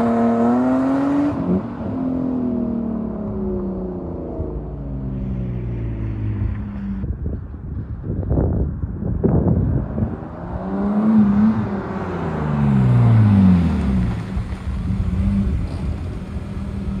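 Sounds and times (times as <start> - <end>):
car engine revving: 9.6 - 17.0.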